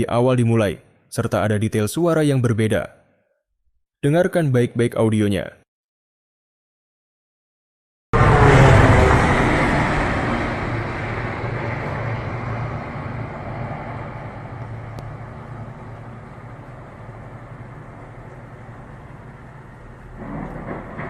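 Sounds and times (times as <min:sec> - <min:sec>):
airliner passing overhead: 0:08.2 - 0:21.0
low droning hum: 0:08.2 - 0:21.0
rush of air: 0:20.1 - 0:21.0.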